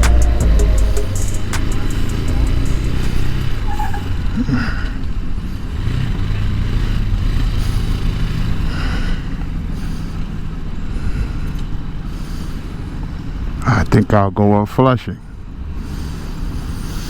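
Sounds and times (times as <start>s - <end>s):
motorcycle engine running: 0.0s - 11.0s
road noise rumble: 0.0s - 17.0s.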